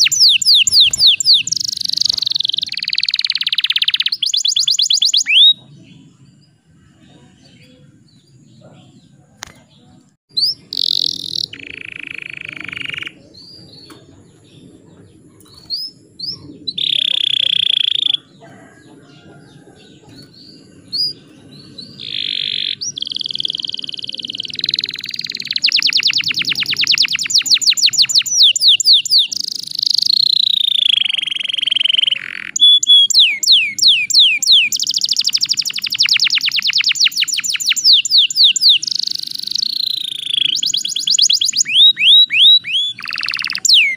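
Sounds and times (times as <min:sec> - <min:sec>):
canary singing: 0:00.0 - 0:43.9.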